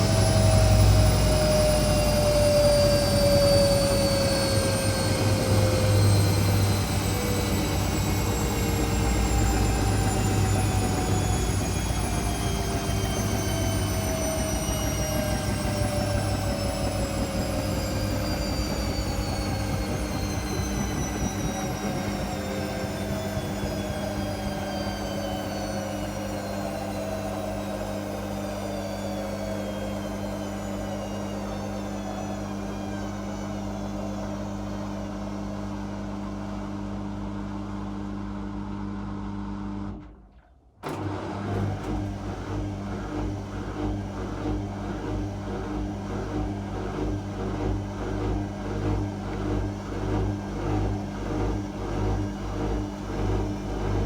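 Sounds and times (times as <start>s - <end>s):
washing machine motor whine: 0.0s - 40.2s, 40.8s - 54.0s
low hum: 0.0s - 40.4s, 52.1s - 54.0s.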